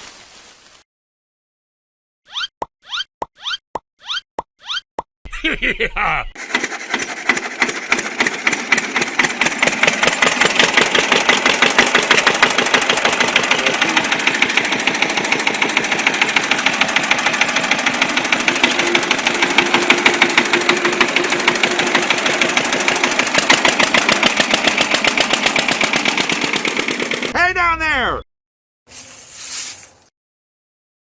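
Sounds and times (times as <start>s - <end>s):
small engine running: 6.4s - 27.3s.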